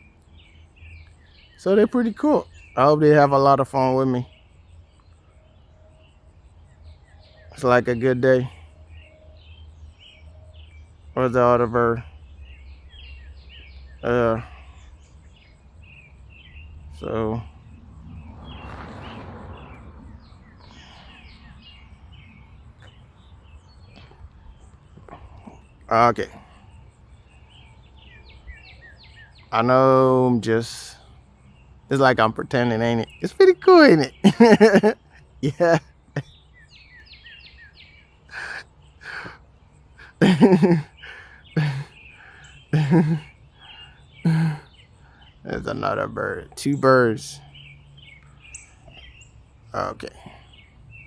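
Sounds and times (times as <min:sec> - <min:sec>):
small birds chirping: 0:00.0 - 0:51.0
man breathing and murmuring: 0:14.0 - 0:15.0, 0:20.6 - 0:21.6, 0:25.0 - 0:27.0, 0:38.3 - 0:45.5, 0:49.8 - 0:50.9.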